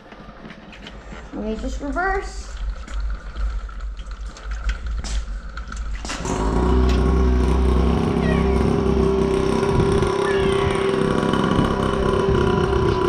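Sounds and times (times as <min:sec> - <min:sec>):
dirt bike motor running: 0:02.6 - 0:13.0.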